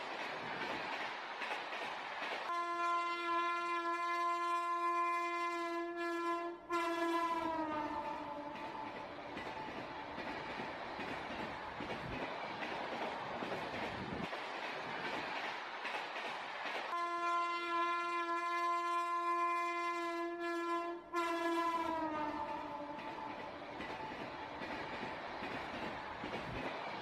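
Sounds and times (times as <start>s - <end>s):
train horn: 2.5s - 9.0s, 16.9s - 23.4s.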